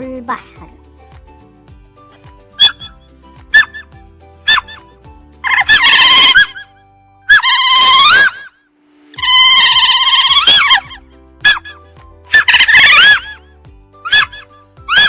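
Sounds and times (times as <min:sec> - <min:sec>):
quiet background music: 0:00.0 - 0:15.0
seal calling: 0:04.5 - 0:08.6, 0:09.2 - 0:13.4, 0:14.0 - 0:15.0.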